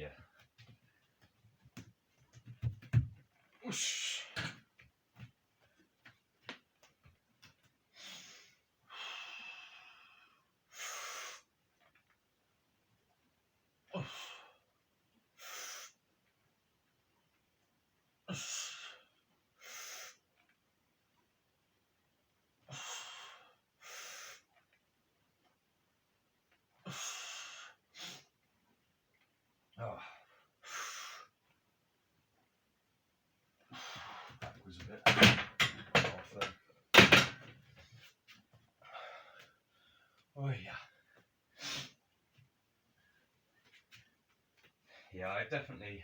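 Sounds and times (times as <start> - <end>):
man breathing hard: 7.9 - 11.5, 38.8 - 40.3.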